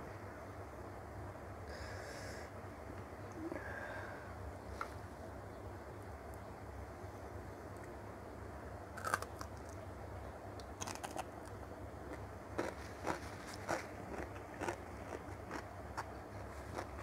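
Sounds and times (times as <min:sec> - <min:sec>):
low steady hum: 0:00.0 - 0:17.0
crunching of crisp cucumber: 0:09.0 - 0:09.8, 0:10.6 - 0:17.0.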